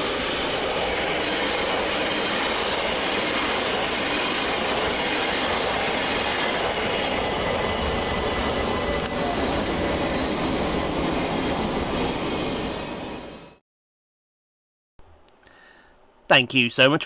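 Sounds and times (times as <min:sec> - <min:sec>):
electric train rumbling on rails: 0:00.0 - 0:13.6.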